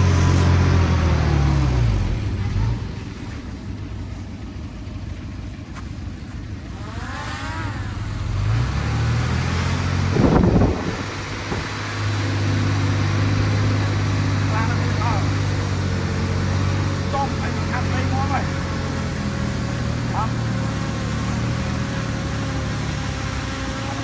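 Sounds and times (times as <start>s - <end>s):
heavy machinery diesel engine: 0.0s - 24.0s.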